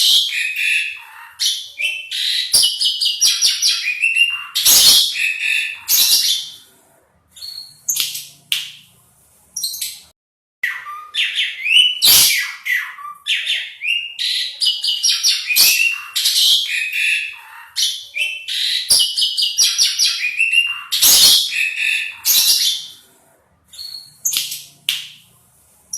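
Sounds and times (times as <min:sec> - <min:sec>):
starling singing: 0:00.0 - 0:06.7, 0:10.6 - 0:23.0, 0:23.7 - 0:25.2.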